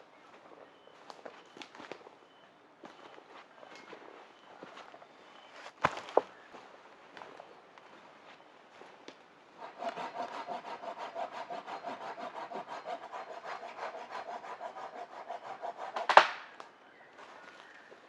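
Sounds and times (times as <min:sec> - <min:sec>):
hand saw cutting wood: 0:09.6 - 0:16.5.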